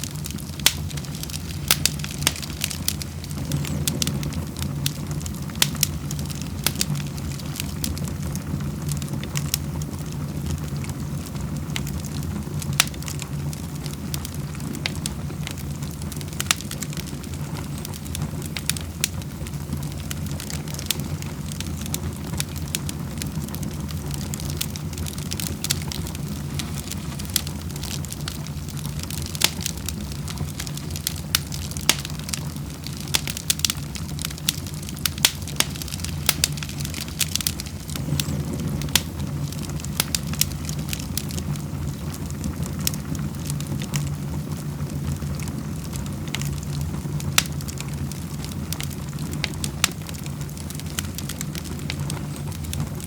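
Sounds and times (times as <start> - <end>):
low fire rumble: 0.0 - 53.0
wood fire crackling and popping: 0.0 - 53.0.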